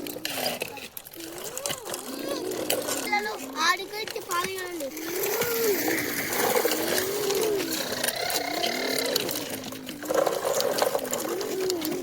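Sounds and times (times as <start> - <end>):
child making engine noise: 1.4 - 9.4.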